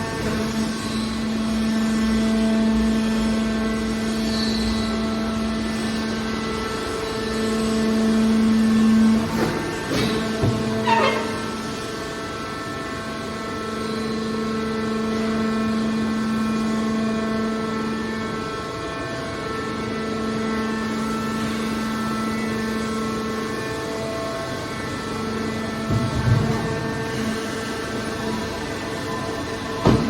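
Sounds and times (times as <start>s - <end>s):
hydraulic pump humming and whining: 0.0s - 30.0s
short screech: 10.8s - 11.7s.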